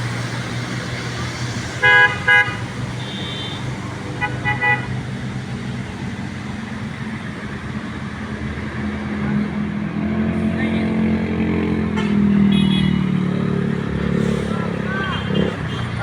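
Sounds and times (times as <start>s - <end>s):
heavy truck engine running: 0.0s - 12.4s, 13.0s - 16.0s
truck horn toots: 1.8s - 5.0s, 11.8s - 13.1s, 14.3s - 16.0s.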